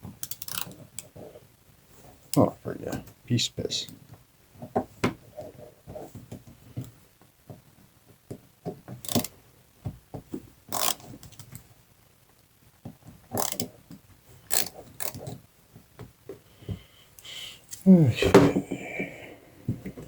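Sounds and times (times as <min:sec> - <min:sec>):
ratcheting screwdriver clicking: 0:00.2 - 0:00.7, 0:09.0 - 0:09.3, 0:10.7 - 0:11.4, 0:13.4 - 0:13.7, 0:14.5 - 0:15.4.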